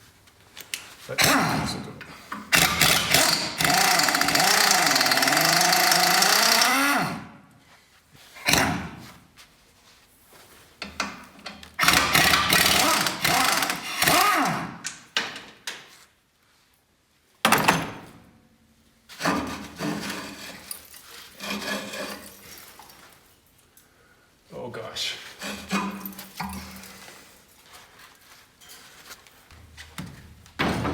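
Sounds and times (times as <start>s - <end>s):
power tool running in bursts: 2.6s - 7.1s, 11.8s - 14.7s.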